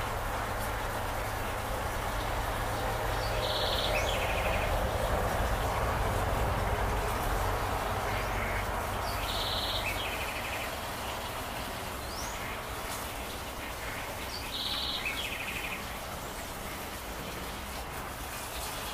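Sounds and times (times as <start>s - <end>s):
songbird call with trill: 9.2s - 10.6s.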